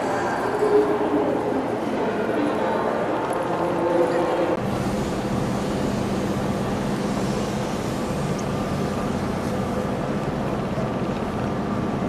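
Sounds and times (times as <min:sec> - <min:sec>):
train engine humming: 0:04.6 - 0:12.0.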